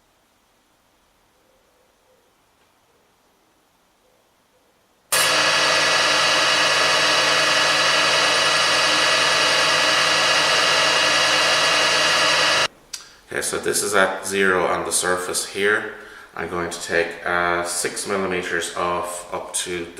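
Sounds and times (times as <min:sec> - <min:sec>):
metal lathe humming and whining: 0:05.1 - 0:12.7.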